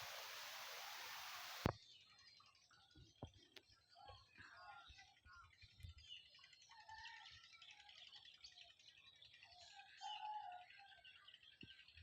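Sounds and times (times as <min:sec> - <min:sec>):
small birds chirping: 0:00.0 - 0:03.8, 0:07.8 - 0:12.0.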